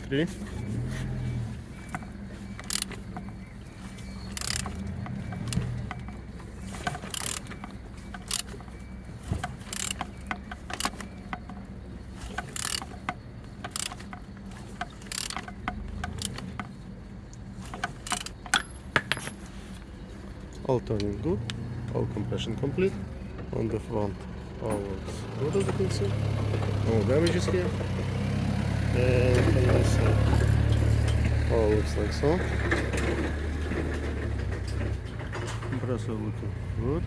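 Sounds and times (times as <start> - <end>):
wrench clicking on engine crank: 2.6 - 3.2, 4.2 - 16.8, 17.6 - 19.5.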